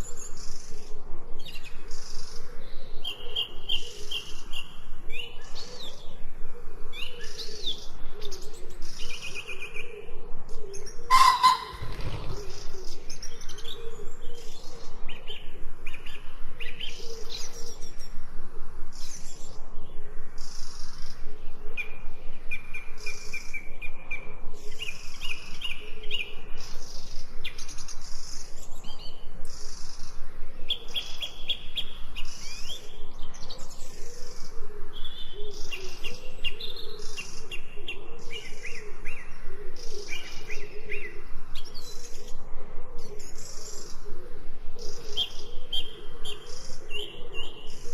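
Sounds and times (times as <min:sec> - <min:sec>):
birds chirping and singing: 0:06.9 - 0:18.2, 0:43.0 - 0:47.9.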